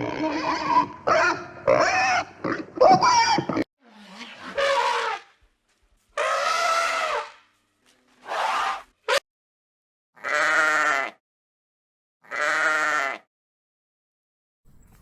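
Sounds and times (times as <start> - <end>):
animal bleating: 3.5 - 5.4, 6.2 - 8.9, 10.2 - 11.2, 12.2 - 13.3.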